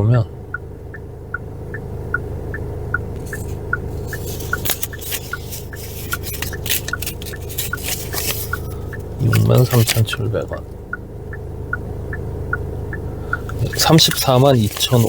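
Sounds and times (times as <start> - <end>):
car engine hum: 0.0 - 15.0
car indicator ticking: 0.3 - 15.0
rustling and small clicks: 3.2 - 10.2.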